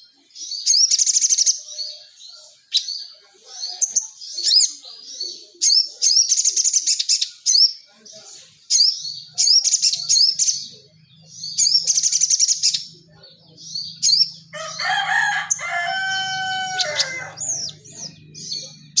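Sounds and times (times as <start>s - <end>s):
songbird chirping and trilling: 0.0s - 19.0s
rooster crowing: 14.5s - 18.1s.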